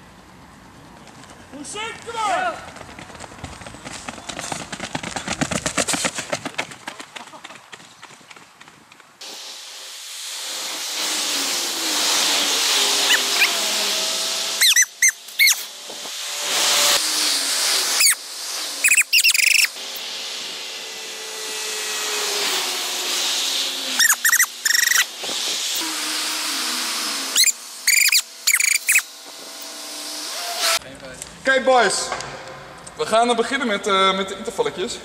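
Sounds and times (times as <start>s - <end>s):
steady rushing hiss: 9.2s - 31.5s
birds chirping: 24.0s - 25.0s, 27.4s - 29.1s.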